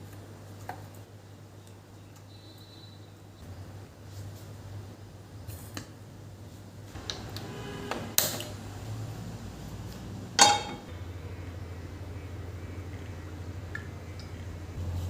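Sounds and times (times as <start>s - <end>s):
low steady hum: 0.0s - 15.0s
kitchen items clinking: 10.4s - 10.9s.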